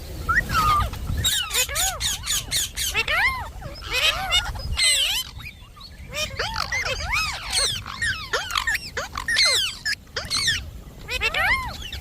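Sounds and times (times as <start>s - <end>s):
parrot whistles and chirps: 0.3s - 5.6s.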